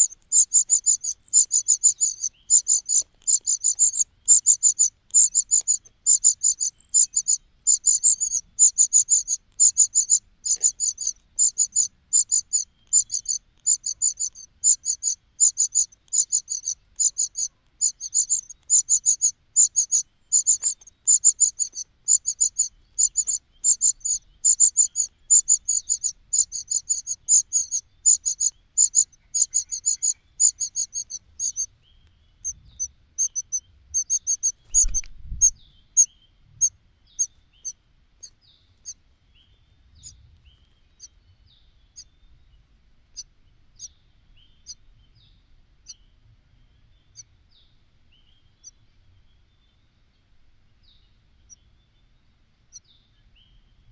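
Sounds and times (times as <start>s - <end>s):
nestling birds cheeping: 0.0s - 39.0s.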